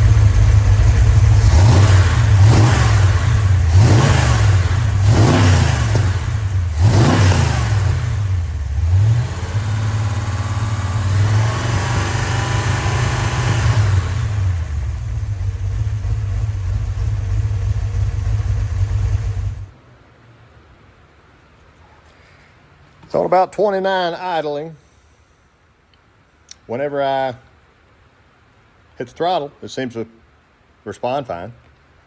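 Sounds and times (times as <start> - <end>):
engine revving and idling: 0.0 - 19.7.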